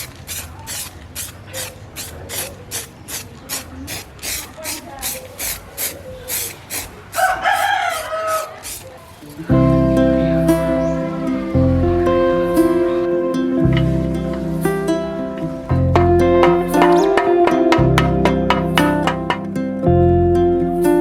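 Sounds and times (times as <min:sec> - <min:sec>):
hand scraping strokes: 0:00.0 - 0:09.5
rooster crowing: 0:07.1 - 0:08.9
music: 0:09.5 - 0:21.0.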